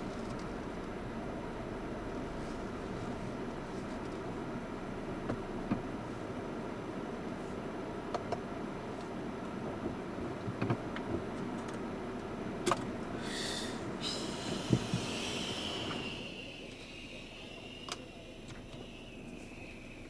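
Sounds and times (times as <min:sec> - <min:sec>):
vehicle low rumble: 0:00.0 - 0:20.0
high squeal: 0:14.0 - 0:20.0.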